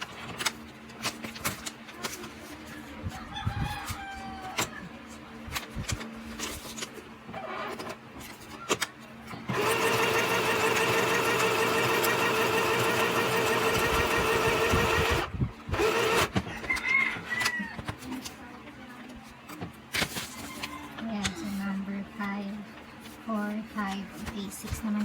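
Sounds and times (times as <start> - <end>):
sewing machine motor running: 9.5 - 16.4.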